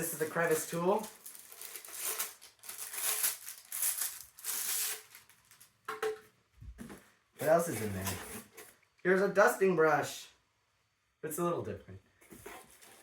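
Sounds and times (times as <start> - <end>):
plastic packaging crinkling: 0.0 - 5.9.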